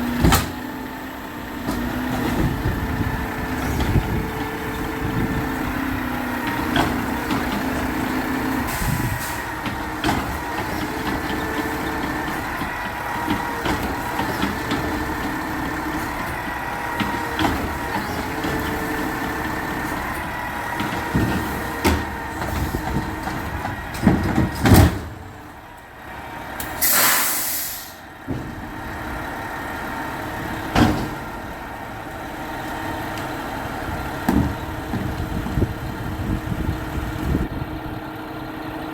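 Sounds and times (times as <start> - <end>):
garbage truck engine running: 0.0 - 38.9
clanks and thumps: 6.4 - 25.4, 28.2 - 29.0, 30.6 - 31.4, 34.2 - 35.6
air brakes hissing: 8.6 - 9.6, 26.6 - 28.1.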